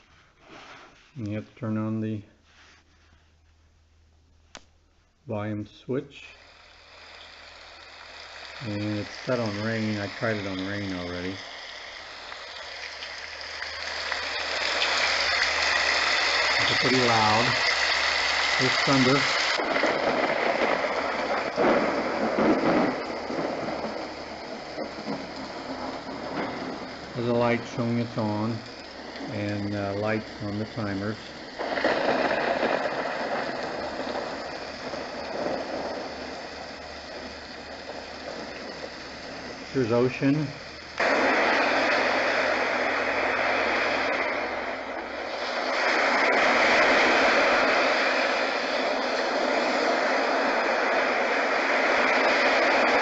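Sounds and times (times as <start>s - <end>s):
rain sound from small speaker: 6.2s - 53.0s
thunder: 8.5s - 53.0s
surf-like rushing noise: 14.1s - 31.0s, 39.5s - 53.0s.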